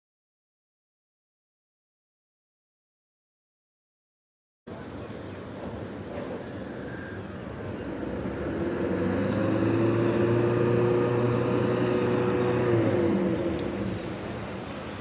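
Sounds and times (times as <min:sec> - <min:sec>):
vehicle passing: 0:08.4 - 0:14.6.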